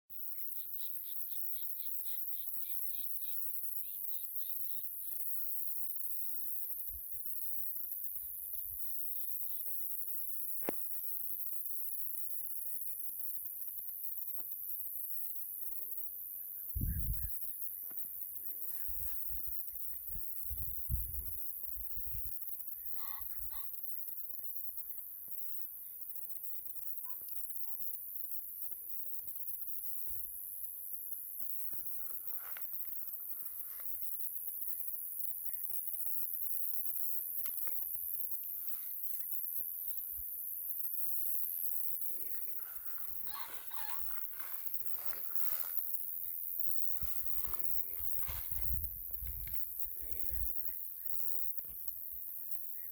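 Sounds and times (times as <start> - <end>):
insect chorus: 0.1 - 52.9
short bird calls: 43.2 - 44.2.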